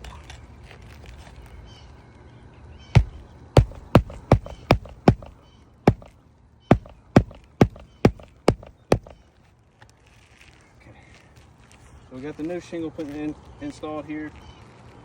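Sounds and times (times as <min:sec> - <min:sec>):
hammer driving nail into shingle: 0:03.0 - 0:06.1, 0:06.7 - 0:09.2.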